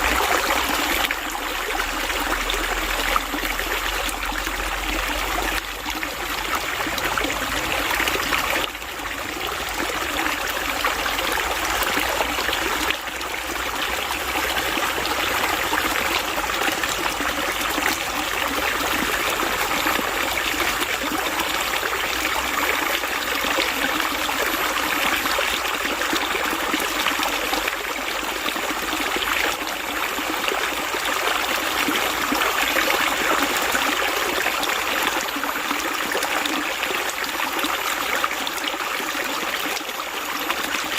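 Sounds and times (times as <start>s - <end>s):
running water flowing: 0.0s - 40.9s.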